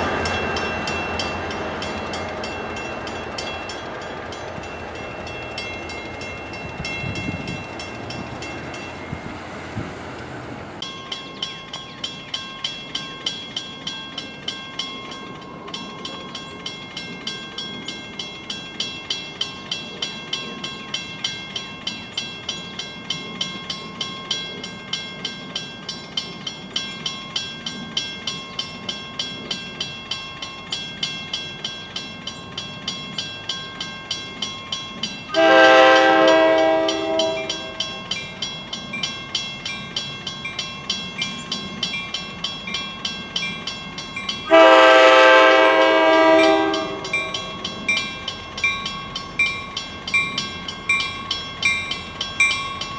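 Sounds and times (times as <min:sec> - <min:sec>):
railroad crossing bell ringing: 0:00.0 - 0:09.6, 0:10.8 - 0:52.9
train air horn blasts: 0:35.3 - 0:37.8, 0:44.5 - 0:47.2.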